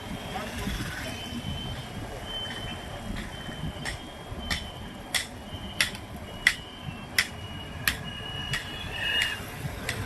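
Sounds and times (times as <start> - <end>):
engine and road rumble: 0.0 - 10.0
turn signal ticking: 1.4 - 10.0.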